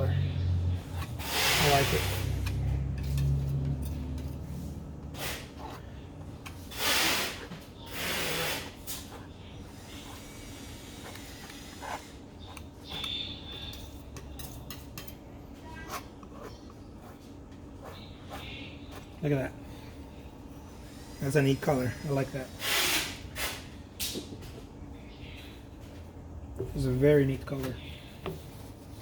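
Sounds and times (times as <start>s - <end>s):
thick paint scraping and rubbing: 0.7s - 13.8s.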